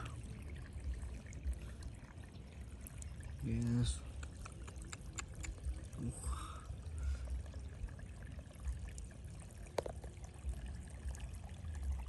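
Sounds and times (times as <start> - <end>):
water pouring and trickling: 0.0 - 12.0.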